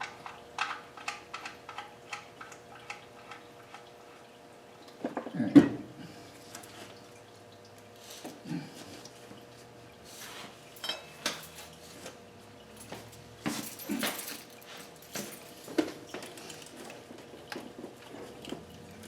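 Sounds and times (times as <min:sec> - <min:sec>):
tools and metal parts clinking: 0:10.8 - 0:11.8, 0:12.8 - 0:17.5.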